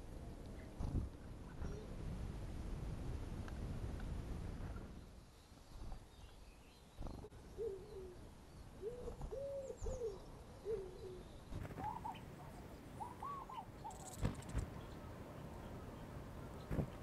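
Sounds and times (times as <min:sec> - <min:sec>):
bird hooting: 0:07.5 - 0:08.2, 0:08.8 - 0:12.2, 0:13.0 - 0:14.2.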